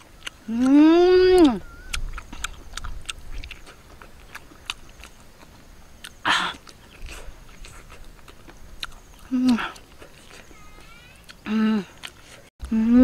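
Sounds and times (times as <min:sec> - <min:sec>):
woman chewing: 0:00.0 - 0:12.5
lip smacks: 0:01.4 - 0:05.2.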